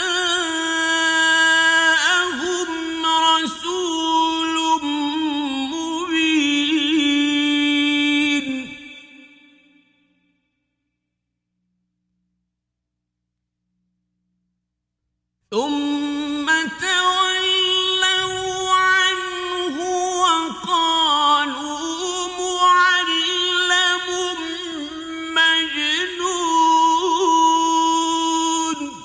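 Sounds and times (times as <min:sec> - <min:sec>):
man chanting recitation: 0:00.0 - 0:09.3, 0:15.5 - 0:29.0.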